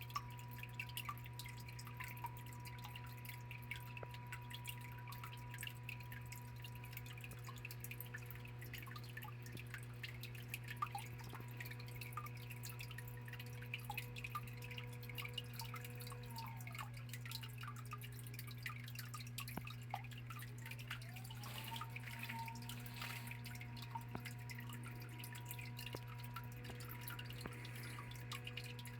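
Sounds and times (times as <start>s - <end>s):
steady low hum: 0.0s - 28.9s
water dripping and trickling: 0.0s - 28.9s.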